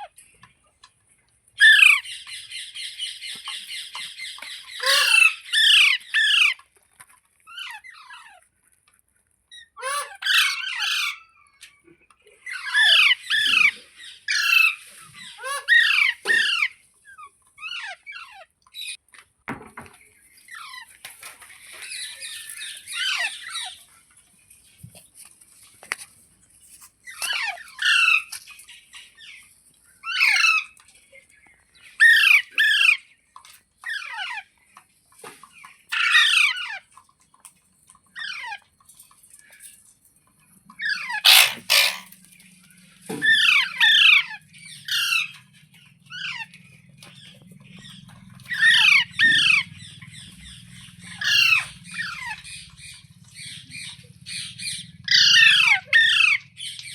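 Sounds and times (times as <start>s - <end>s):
parakeet screeching: 4.8s - 6.5s, 15.4s - 16.7s, 40.8s - 42.1s, 43.2s - 45.3s, 51.1s - 52.4s.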